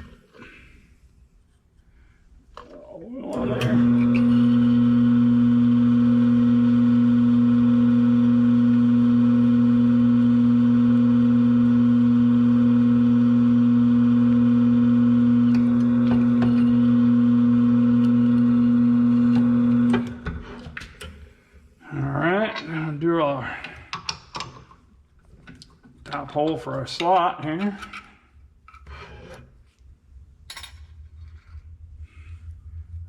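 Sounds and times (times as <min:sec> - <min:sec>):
drill press motor humming: 0:03.3 - 0:20.5.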